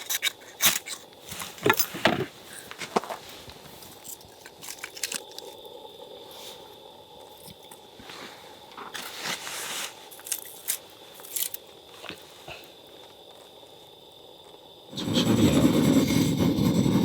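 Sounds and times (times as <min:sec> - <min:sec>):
campfire kindling crackling: 0:02.4 - 0:17.0.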